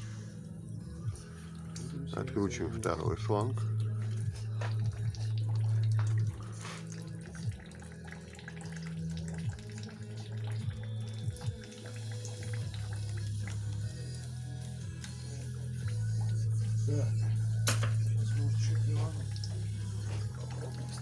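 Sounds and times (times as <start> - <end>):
coolant pouring and splashing: 0.0 - 21.0.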